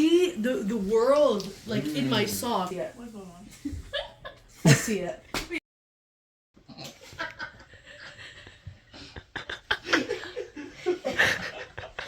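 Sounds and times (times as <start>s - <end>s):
people speaking words: 0.0s - 3.5s
people laughing: 7.0s - 12.0s.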